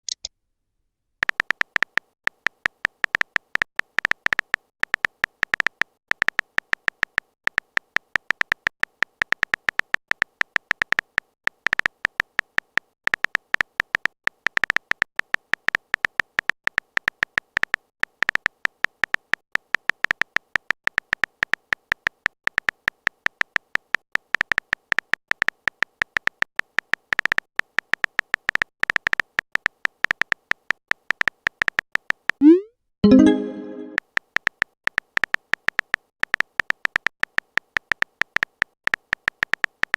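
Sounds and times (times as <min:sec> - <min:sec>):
short electronic blips: 0:32.4 - 0:34.0.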